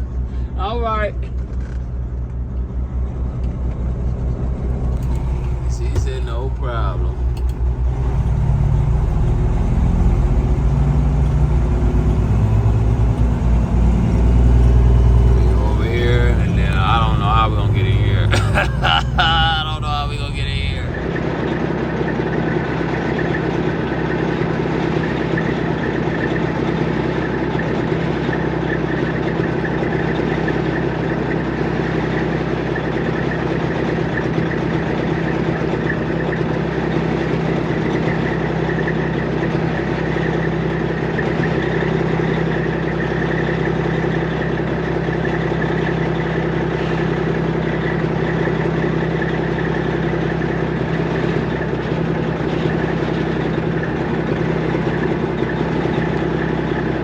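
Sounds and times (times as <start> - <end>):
truck diesel engine humming: 0.0 - 26.1.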